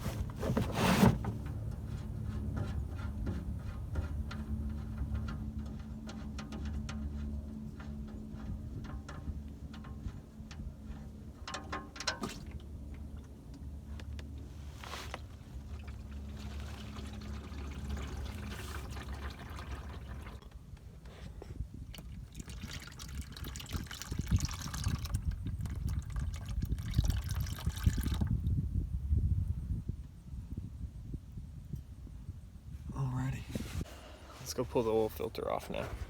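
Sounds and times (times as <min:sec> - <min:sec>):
oil draining into a pan: 0:15.8 - 0:20.4, 0:22.0 - 0:28.4.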